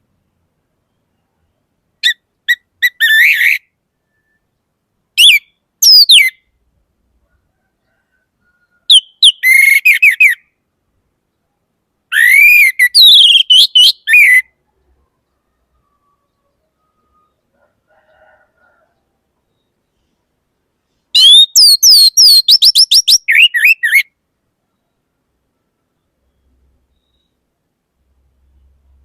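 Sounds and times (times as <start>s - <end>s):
bird singing whistled phrases: 2.0s - 4.5s, 5.2s - 6.4s, 8.9s - 10.5s, 12.1s - 14.5s, 21.2s - 24.1s.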